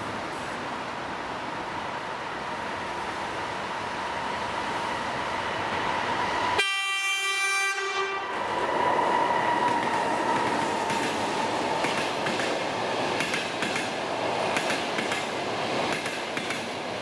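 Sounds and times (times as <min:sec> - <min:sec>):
train rolling noise: 0:00.0 - 0:17.0
locomotive horn blast: 0:06.6 - 0:08.4.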